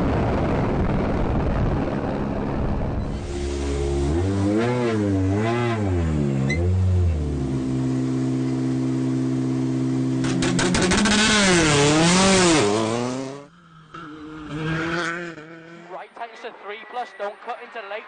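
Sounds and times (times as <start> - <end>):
rally car engine revving: 2.1 - 16.1
exhaust pops crackling: 10.2 - 11.4.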